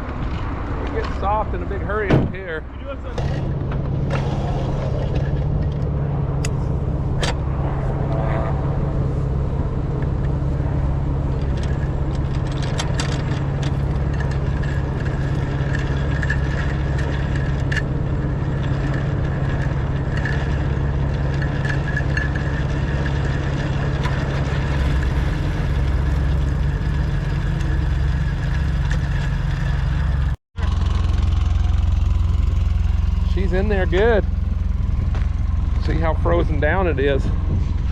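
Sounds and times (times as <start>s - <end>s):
engine humming low: 0.0s - 37.9s
light rattles and clicks: 11.2s - 37.9s.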